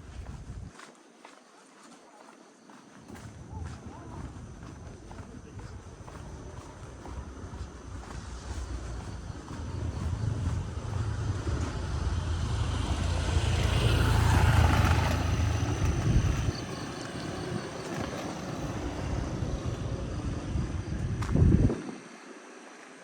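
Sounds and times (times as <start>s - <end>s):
outdoor background noise: 0.0s - 23.0s
vehicle engine passing: 3.3s - 21.6s.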